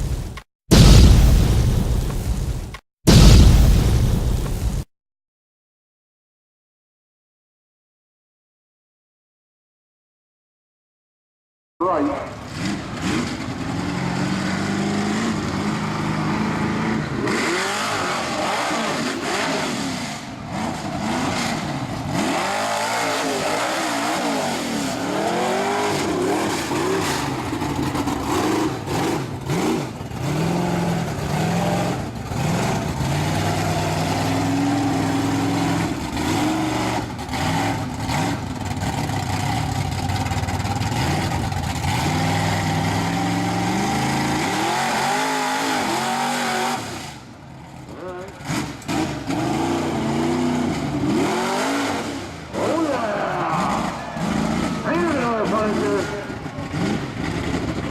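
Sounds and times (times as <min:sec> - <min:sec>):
truck engine revving: 0:11.8 - 0:57.9.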